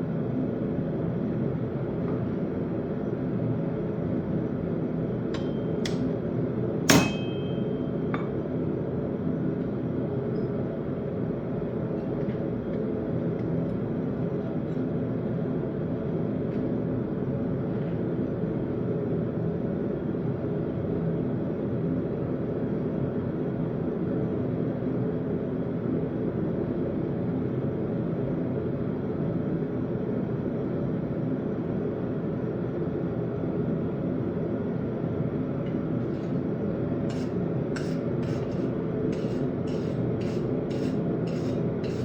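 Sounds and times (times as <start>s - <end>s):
hammer striking metal: 5.4s - 6.1s, 6.9s - 8.3s, 37.1s - 42.0s.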